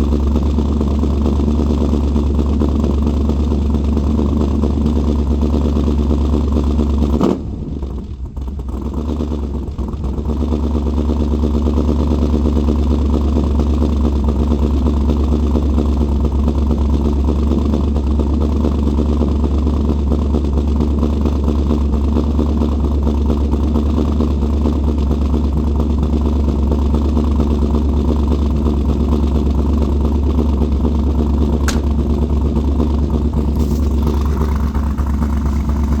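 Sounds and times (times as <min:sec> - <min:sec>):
vehicle engine idling: 0:25.2 - 0:36.0
sharp click: 0:31.6 - 0:32.1.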